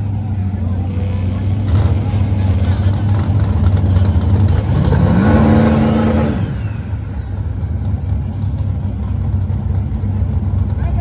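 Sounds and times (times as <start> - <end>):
engine revving: 0.0 - 8.5
vehicle engines rumbling: 0.0 - 11.0.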